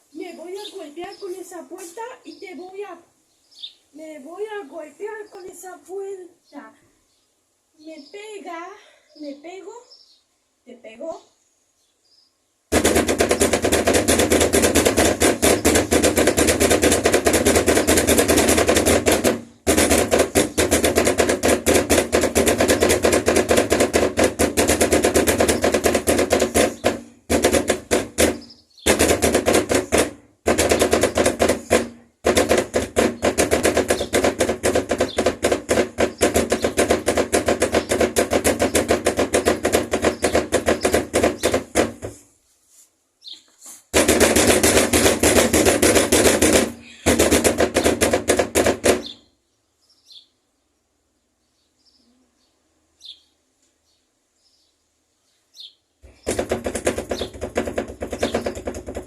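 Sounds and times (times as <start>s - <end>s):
rapid knocking on a door: 12.7s - 42.2s, 43.9s - 49.2s, 56.0s - 59.0s.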